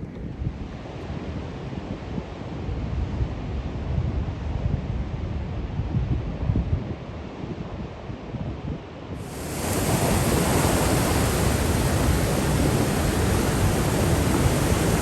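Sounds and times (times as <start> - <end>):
rough sea surf roaring: 9.2 - 15.0
wind buffeting microphone: 9.2 - 15.0.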